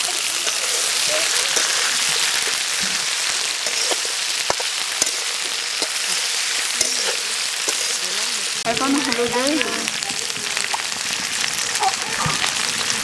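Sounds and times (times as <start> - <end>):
okra sizzling in hot oil: 0.0 - 13.0
metal spatula clicking on pot: 3.6 - 6.1, 6.8 - 8.0.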